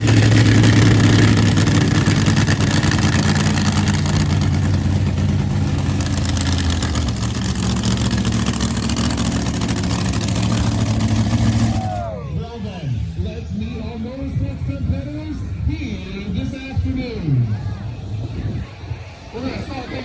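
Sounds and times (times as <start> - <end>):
truck engine idling: 0.0 - 12.5.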